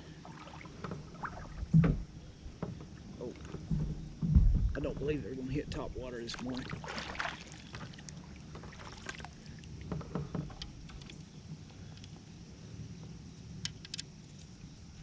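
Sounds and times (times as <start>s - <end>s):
steady low rumble: 1.1s - 6.6s.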